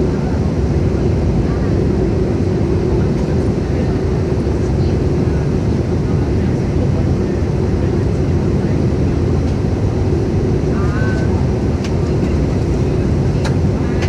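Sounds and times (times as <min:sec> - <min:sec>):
aircraft engine droning hum: 0:00.0 - 0:14.0
airflow rumbling in cabin: 0:00.0 - 0:14.0.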